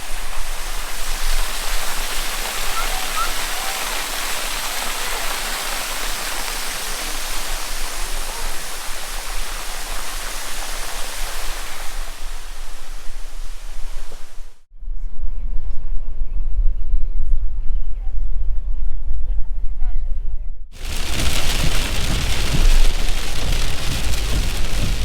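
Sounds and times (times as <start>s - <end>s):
water rushing: 0.0s - 14.7s, 20.8s - 25.0s
low rumble: 12.6s - 25.0s.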